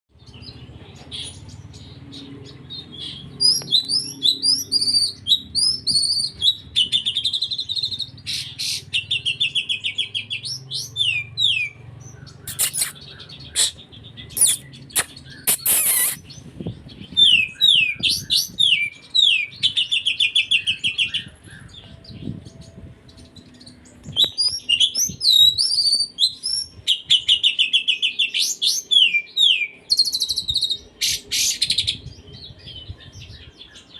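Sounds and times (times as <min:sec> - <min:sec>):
bird singing chirps and trills: 0:00.1 - 0:33.9
harsh rasping bird calls: 0:00.2 - 0:21.8.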